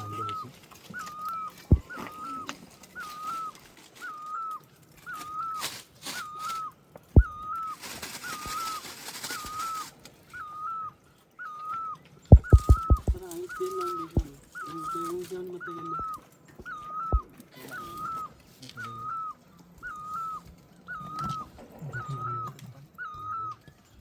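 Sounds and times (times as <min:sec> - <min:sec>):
sharp knocks: 0:12.3 - 0:13.2.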